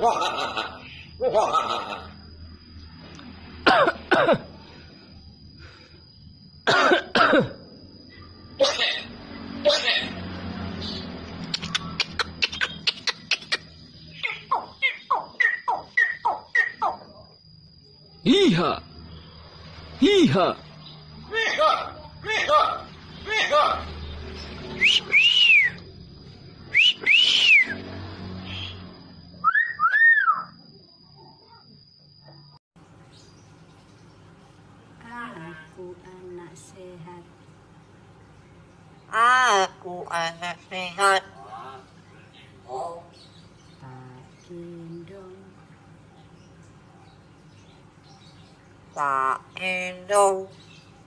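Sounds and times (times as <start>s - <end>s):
talking bird harsh calls: 10.8s - 17.2s, 48.7s - 50.7s
pet bird whistling: 14.2s - 17.0s, 24.8s - 25.8s, 26.7s - 27.8s, 29.4s - 30.6s.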